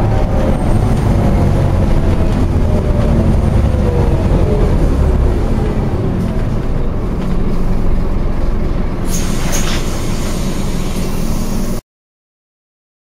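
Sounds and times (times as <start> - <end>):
bus engine and road rumble: 0.0 - 11.8
short hissing burst: 9.1 - 11.8.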